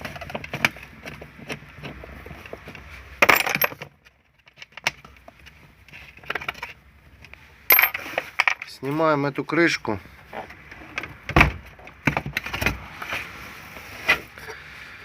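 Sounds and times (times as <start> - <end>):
tools clattering: 3.2 - 4.6, 7.7 - 8.8.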